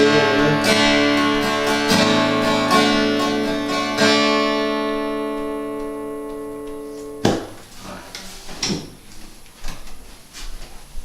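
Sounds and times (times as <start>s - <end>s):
acoustic guitar strumming: 0.0s - 8.1s
sharp knock: 7.2s - 7.6s.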